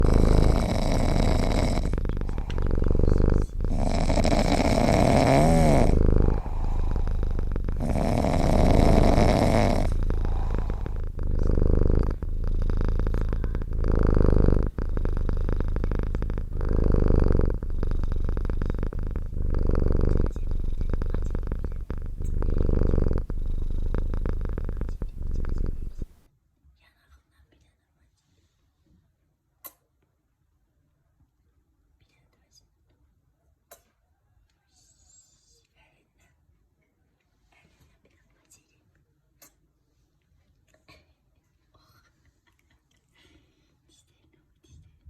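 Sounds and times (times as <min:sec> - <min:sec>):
cat purring: 0:00.0 - 0:26.3.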